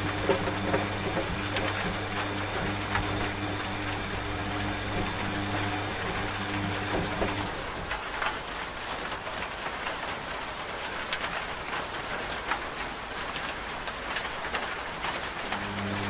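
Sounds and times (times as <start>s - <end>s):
washing machine humming: 0.0s - 8.9s, 15.3s - 16.0s
steady rain falling: 0.0s - 16.0s.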